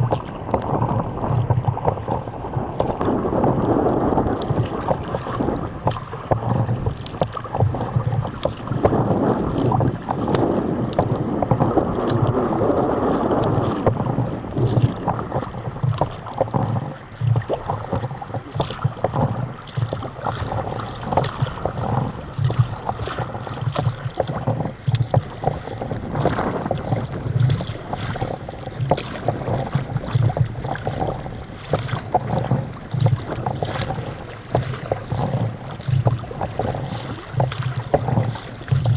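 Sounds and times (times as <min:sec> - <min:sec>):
water slapping against a hull: 0:00.0 - 0:38.9
wind buffeting microphone: 0:00.0 - 0:38.9.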